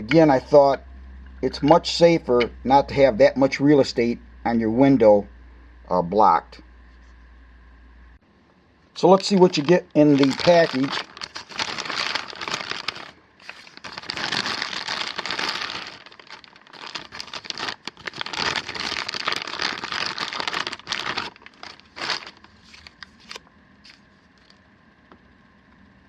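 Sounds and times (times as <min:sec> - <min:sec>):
handling noises: 0:09.2 - 0:24.6
packaging crinkling and rustling: 0:09.2 - 0:24.6.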